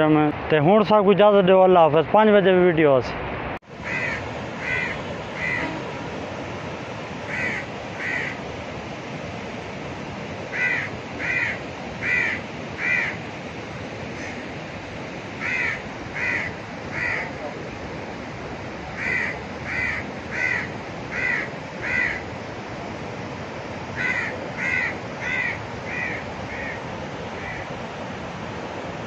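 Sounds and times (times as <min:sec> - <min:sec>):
steady rushing noise: 0:00.0 - 0:29.0
bird calling in short calls: 0:03.8 - 0:06.0, 0:24.0 - 0:26.8.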